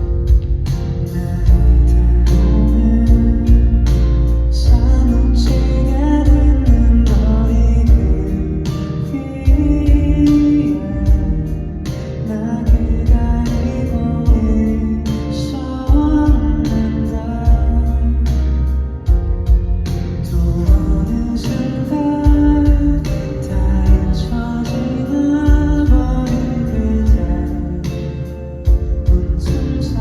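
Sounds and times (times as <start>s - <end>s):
drum hits: 0.0s - 2.4s, 9.5s - 14.8s, 19.1s - 20.0s
heavy bass line: 0.0s - 30.0s
man singing: 1.0s - 30.0s.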